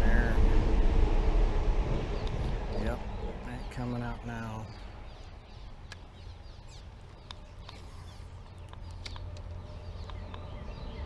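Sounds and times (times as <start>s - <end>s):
steady low rumble: 0.0s - 11.0s
small birds chirping: 2.2s - 11.0s
sharp clicks: 8.4s - 10.4s.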